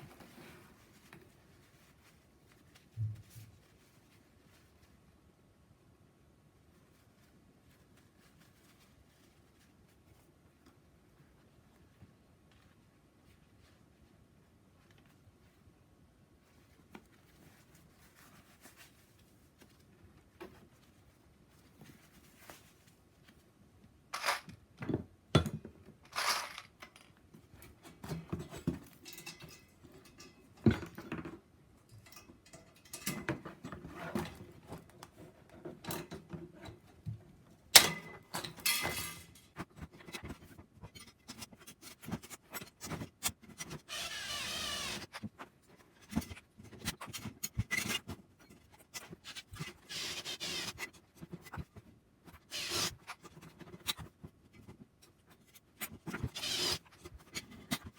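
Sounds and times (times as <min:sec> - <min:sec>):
metal parts clinking: 0:24.2 - 0:24.5, 0:26.1 - 0:27.1.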